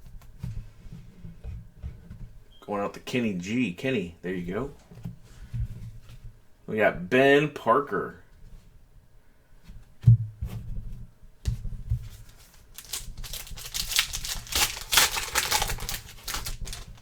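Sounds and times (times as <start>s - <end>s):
wrapper crinkling and rustling: 12.1s - 17.0s.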